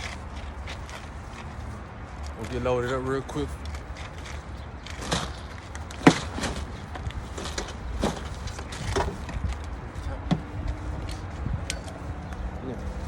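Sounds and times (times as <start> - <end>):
steady low rumble: 0.0 - 13.0
gear knocking and clunking: 4.1 - 12.4.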